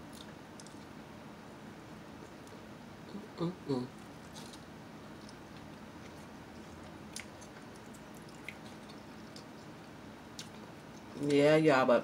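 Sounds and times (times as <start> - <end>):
person chewing quietly: 0.0 - 0.9, 2.2 - 11.4
low steady hum: 0.0 - 12.0.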